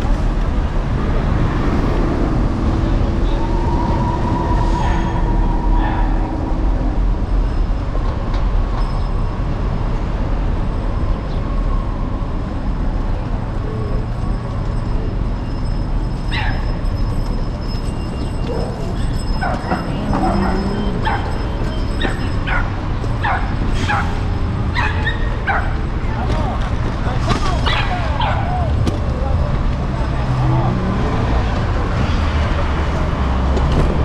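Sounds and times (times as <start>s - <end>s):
traffic rumble: 0.0s - 34.0s
passing vehicle hum: 17.1s - 34.0s.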